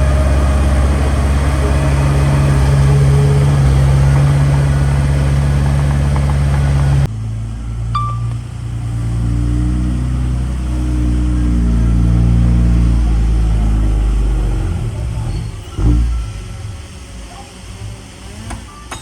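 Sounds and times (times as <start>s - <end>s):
engine revving: 0.0s - 7.1s
heavy diesel engine running: 0.0s - 18.5s
high beep: 8.0s - 8.4s.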